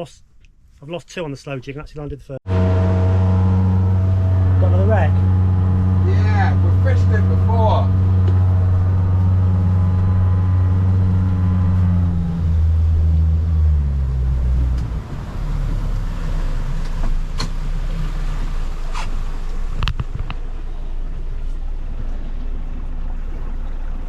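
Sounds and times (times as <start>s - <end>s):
boat engine running: 2.5s - 24.0s
water noise: 2.5s - 24.0s
wind noise: 19.6s - 24.0s.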